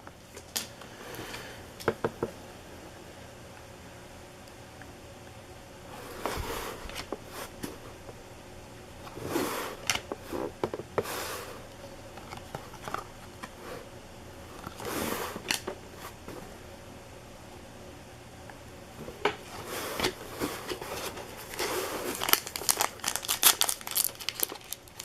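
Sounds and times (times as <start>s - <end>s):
cards and wrappers rustling: 19.5s - 25.0s.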